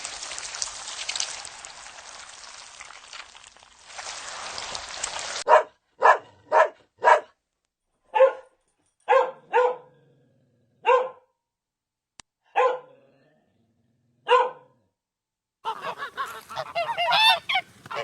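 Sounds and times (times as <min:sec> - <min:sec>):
dog barking: 0:05.4 - 0:07.4, 0:08.1 - 0:10.0, 0:10.8 - 0:11.3, 0:12.5 - 0:13.0, 0:14.2 - 0:14.8.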